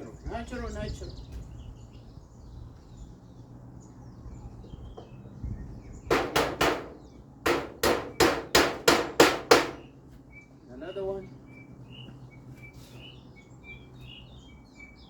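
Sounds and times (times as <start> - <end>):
hammer on metal roof: 6.1 - 10.0.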